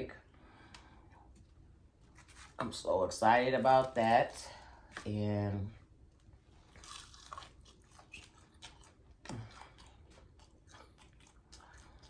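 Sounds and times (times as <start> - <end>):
chewing crunches: 6.6 - 12.0.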